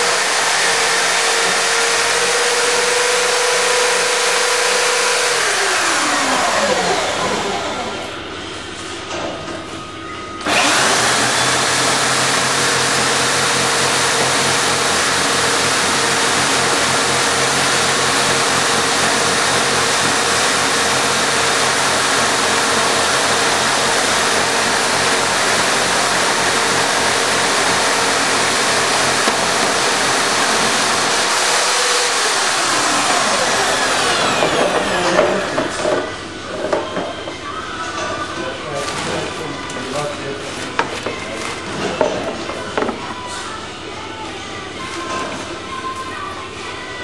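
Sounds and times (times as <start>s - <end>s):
electric drills whirring: 0.0s - 8.1s, 10.4s - 36.2s.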